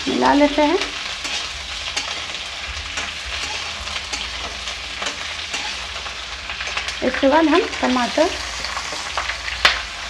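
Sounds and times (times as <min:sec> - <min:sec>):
vegetables sizzling in oil: 0:00.0 - 0:10.0
spatula scraping a metal pan: 0:01.2 - 0:06.9.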